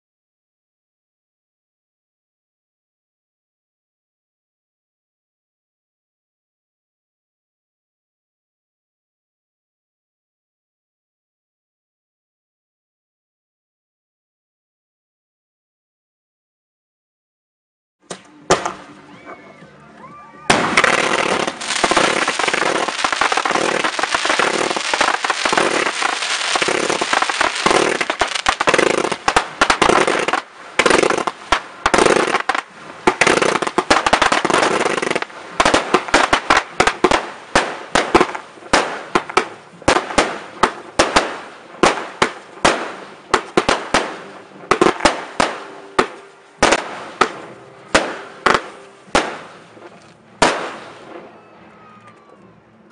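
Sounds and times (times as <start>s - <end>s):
fireworks bangs and crackling: 18.1s - 19.0s, 20.4s - 51.4s.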